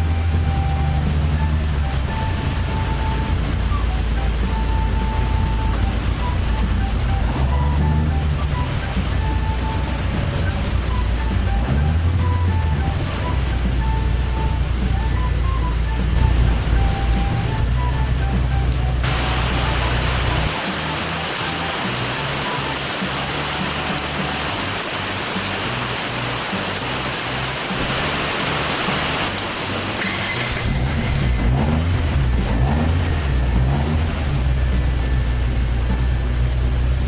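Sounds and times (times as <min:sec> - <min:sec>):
heavy rain pouring: 0:00.0 - 0:37.0
low rumble: 0:30.5 - 0:37.0.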